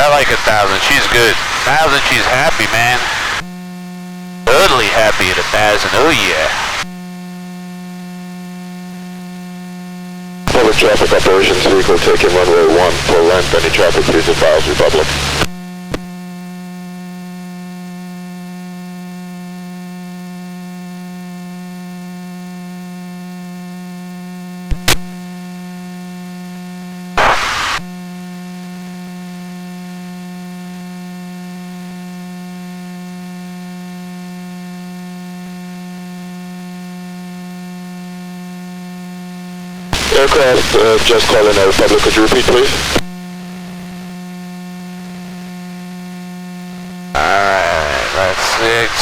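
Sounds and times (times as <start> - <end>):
radio static burst: 0.0 - 3.5, 4.5 - 6.9, 10.5 - 15.6, 27.2 - 27.8, 39.9 - 43.0, 47.2 - 49.0
electrical hum: 0.0 - 7.1, 8.9 - 16.2, 39.6 - 45.9, 46.6 - 49.0.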